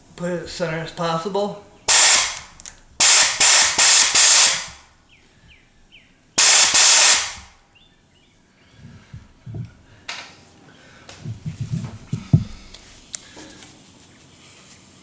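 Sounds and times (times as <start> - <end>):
sandblaster hissing bursts: 1.8 - 4.9, 6.4 - 7.6.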